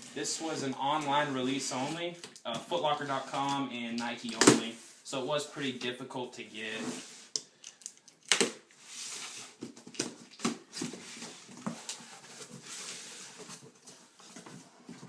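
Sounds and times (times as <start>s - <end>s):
box and paper rustling: 8.9s - 15.0s.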